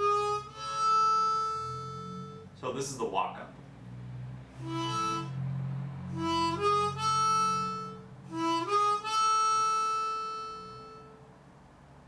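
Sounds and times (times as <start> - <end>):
harmonica rising phrase: 0.0 - 2.7, 4.5 - 11.3.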